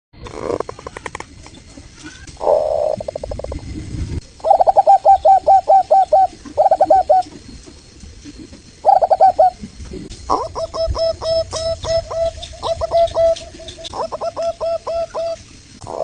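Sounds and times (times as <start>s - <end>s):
dove cooing: 2.4s - 3.6s, 4.4s - 7.4s, 8.3s - 16.0s.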